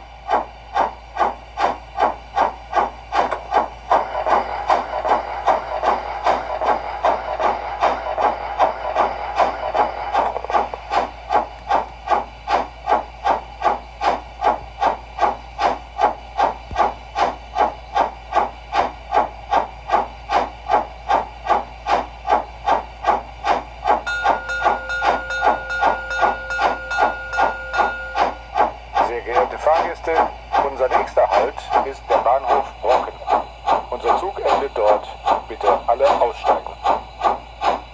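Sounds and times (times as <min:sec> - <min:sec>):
model steam locomotive chuffing: 0:00.0 - 0:37.9
steady held tone: 0:23.9 - 0:37.4.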